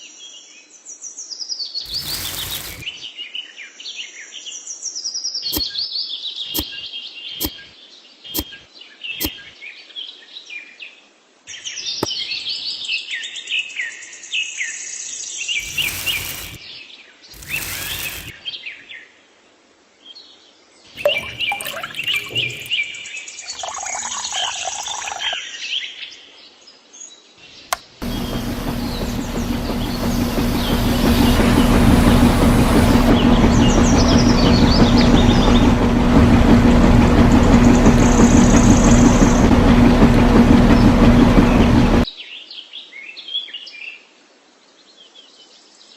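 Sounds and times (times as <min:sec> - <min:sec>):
loud noisy bursts: 0:01.9 - 0:02.9, 0:15.6 - 0:16.6, 0:17.4 - 0:18.3, 0:28.0 - 0:42.0
birds chirping: 0:21.0 - 0:25.4, 0:28.0 - 0:42.0
steady buzzing hum: 0:28.0 - 0:42.0.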